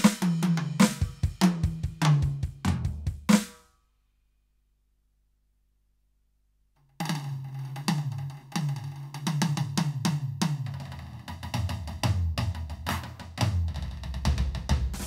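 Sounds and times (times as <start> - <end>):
electronic drum kit pattern: 0.0 - 3.6, 7.8 - 15.0.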